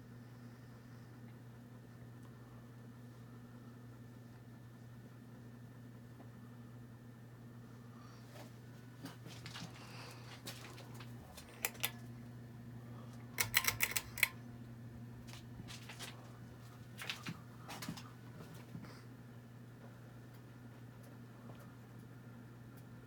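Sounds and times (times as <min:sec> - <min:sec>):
ceiling fan motor humming: 0:00.0 - 0:23.0
sharp clicks and rattles: 0:11.3 - 0:12.1, 0:13.4 - 0:14.4.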